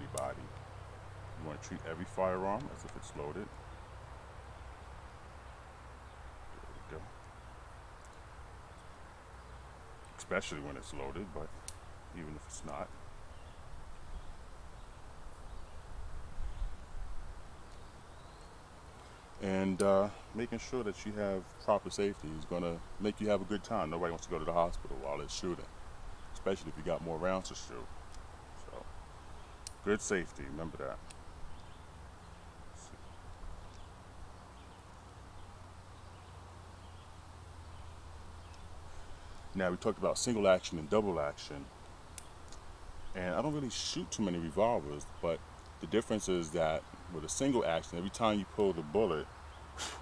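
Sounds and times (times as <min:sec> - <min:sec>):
soft hiss: 0:00.0 - 0:50.0
faint ticks: 0:06.9 - 0:09.0, 0:11.4 - 0:11.9, 0:28.1 - 0:29.8, 0:30.8 - 0:39.6, 0:41.8 - 0:42.7.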